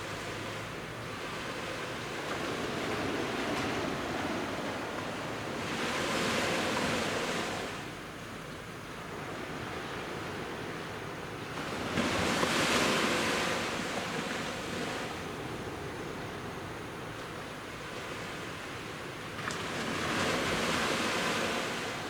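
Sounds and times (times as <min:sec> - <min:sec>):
sea waves breaking on beach: 0:17.8 - 0:22.0.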